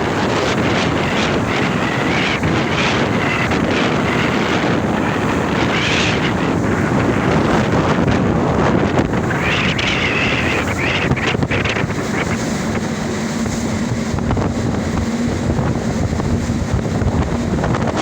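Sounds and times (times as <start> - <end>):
sea water rushing: 0.0 - 18.0
wind buffeting microphone: 0.0 - 18.0.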